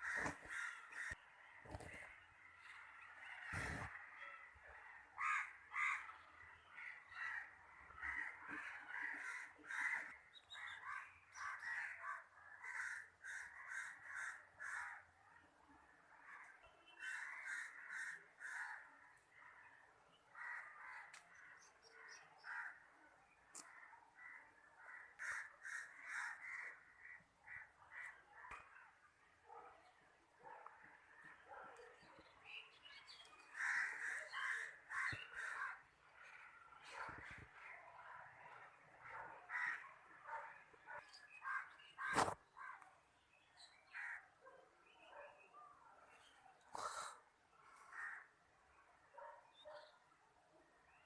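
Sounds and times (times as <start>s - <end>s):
birds calling harshly: 0.0s - 15.0s, 30.6s - 37.9s, 38.5s - 42.8s, 46.2s - 48.3s.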